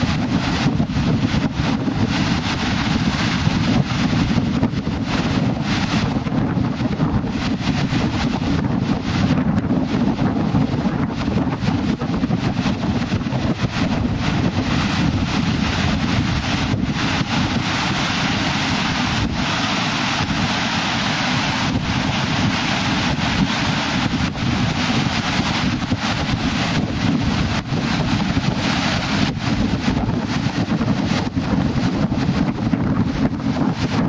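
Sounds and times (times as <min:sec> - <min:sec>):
steady broad rushing noise: 0:00.0 - 0:34.0
wind gusts buffeting microphone: 0:00.0 - 0:34.0.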